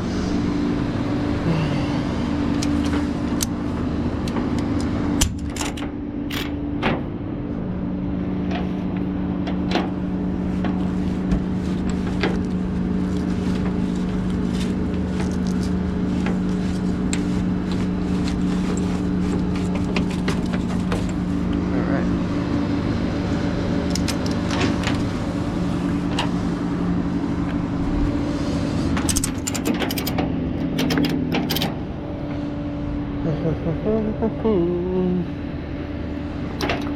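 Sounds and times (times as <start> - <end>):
tow truck engine humming: 0.0 - 36.9
metallic clicks and clanks: 4.2 - 7.0, 23.9 - 25.0, 29.0 - 31.8.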